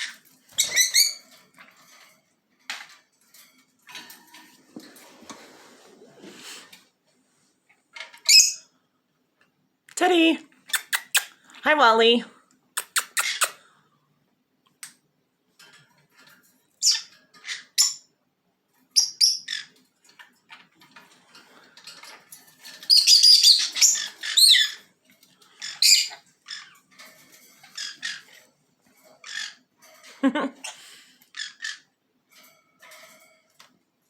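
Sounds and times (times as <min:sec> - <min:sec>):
parrots squawking and chirping: 0:00.0 - 0:02.9, 0:08.0 - 0:08.8, 0:10.6 - 0:11.4, 0:12.7 - 0:13.7, 0:16.7 - 0:18.1, 0:18.9 - 0:33.6.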